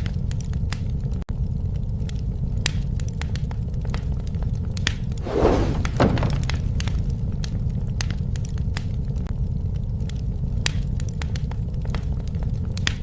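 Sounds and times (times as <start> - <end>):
wood fire crackling: 0.0 - 13.0
low rumble: 5.1 - 8.1.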